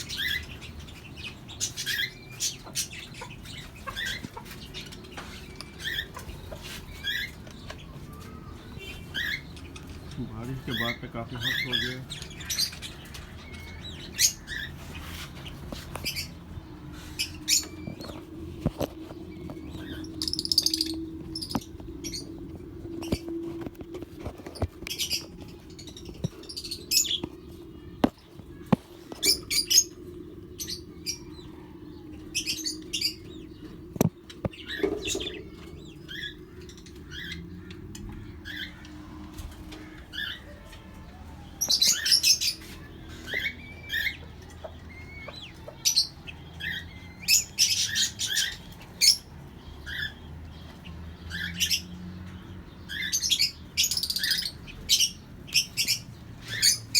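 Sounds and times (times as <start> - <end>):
parrots chirping: 0.0 - 18.2, 18.8 - 23.3, 32.3 - 56.9
steady low hum: 0.0 - 41.4.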